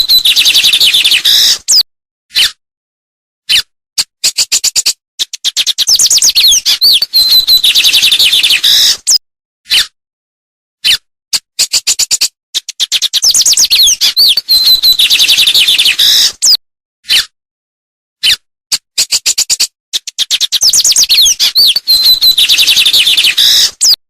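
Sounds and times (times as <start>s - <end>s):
songbird singing: 0.0s - 1.8s, 5.5s - 9.0s, 12.8s - 16.6s, 20.3s - 24.0s.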